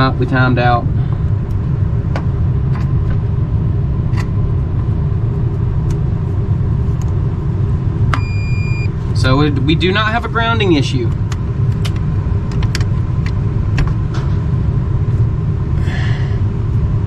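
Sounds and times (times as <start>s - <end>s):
steady low rumble: 0.0s - 17.0s
multimeter continuity beep: 8.1s - 9.0s.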